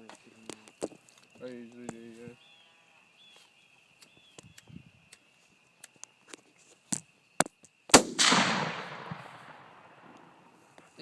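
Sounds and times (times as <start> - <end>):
rifle shot: 7.9 - 10.6.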